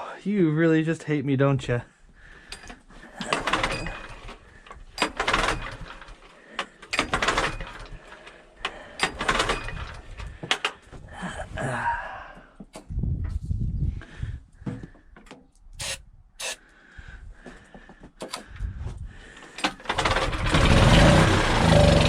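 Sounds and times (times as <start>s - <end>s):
engine recoil cord cranking: 2.4s - 10.8s, 19.3s - 22.0s.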